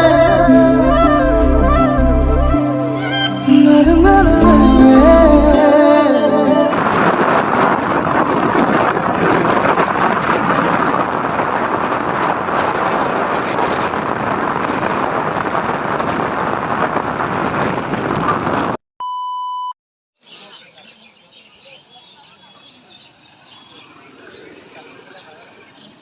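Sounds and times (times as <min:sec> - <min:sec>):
loud steady rushing noise: 0:04.4 - 0:18.8
short electronic beep: 0:19.0 - 0:19.8.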